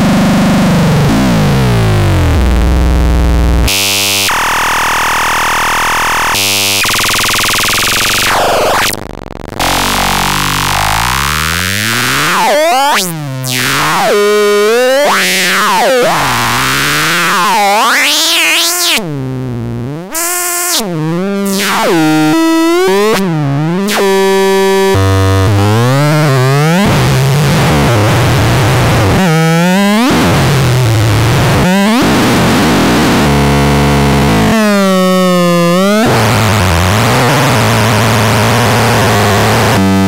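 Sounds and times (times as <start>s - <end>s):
synthesizer tones swooping: 9.6s - 19.2s.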